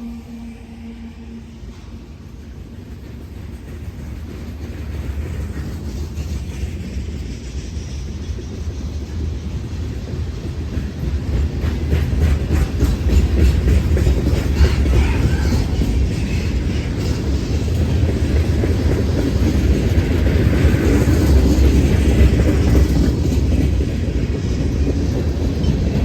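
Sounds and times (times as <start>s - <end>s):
freight train rumble: 0.0s - 26.0s
wheels clicking over rail joints: 2.8s - 26.0s.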